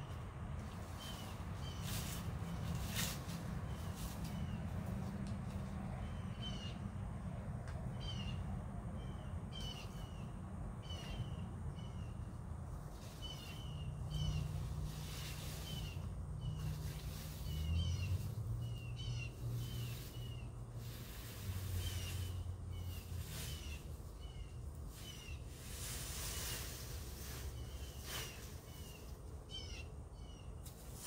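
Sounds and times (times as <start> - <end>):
bird calling: 8.0 - 8.4, 9.0 - 12.2, 27.5 - 30.5.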